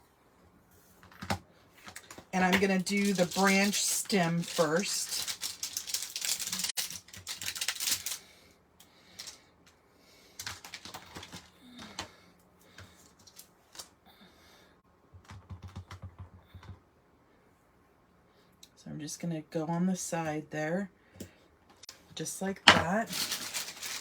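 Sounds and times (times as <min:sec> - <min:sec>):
supplies handled on desk: 0:22.7 - 0:24.0.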